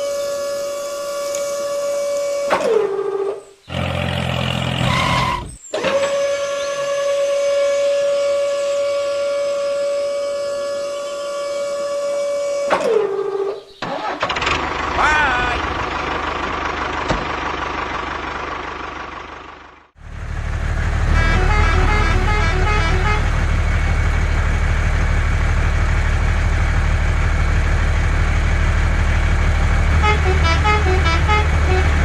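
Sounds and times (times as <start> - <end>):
low engine-like rumble: 14.3 - 32.0.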